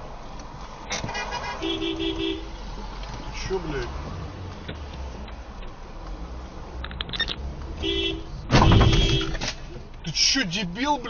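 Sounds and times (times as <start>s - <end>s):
car engine hum: 0.0s - 11.0s
car horn honking: 1.1s - 2.6s, 7.8s - 9.5s.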